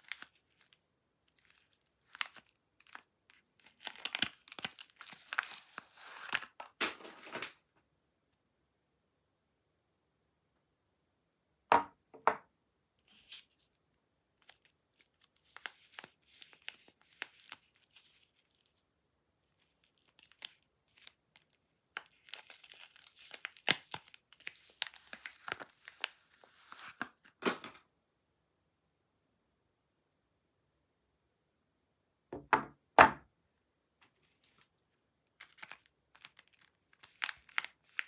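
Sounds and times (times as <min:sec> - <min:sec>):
packaging being torn and crinkled: 0:00.0 - 0:07.6, 0:14.4 - 0:18.8, 0:19.5 - 0:27.8, 0:35.3 - 0:38.0.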